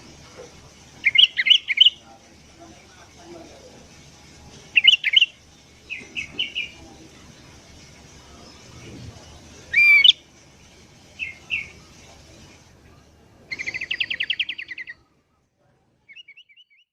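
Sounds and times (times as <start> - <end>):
bulbul calling: 1.0 - 2.0, 4.7 - 6.8, 9.7 - 10.2, 13.5 - 15.0.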